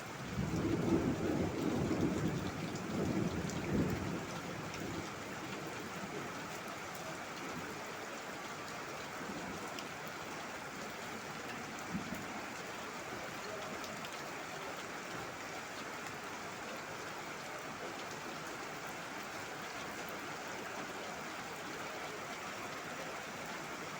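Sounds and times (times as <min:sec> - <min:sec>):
heavy rain falling: 0:00.0 - 0:23.9
low rumble of thunder: 0:00.2 - 0:06.4.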